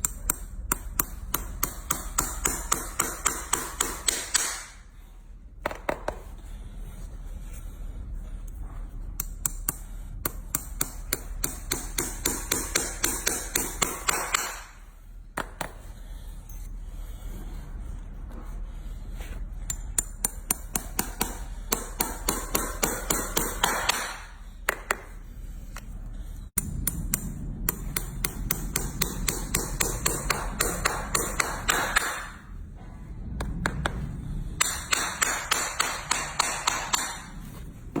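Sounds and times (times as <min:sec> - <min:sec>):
hammer tapping metal: 0:00.0 - 0:04.8, 0:09.1 - 0:14.8, 0:19.6 - 0:25.2, 0:26.6 - 0:32.5, 0:34.6 - 0:38.0.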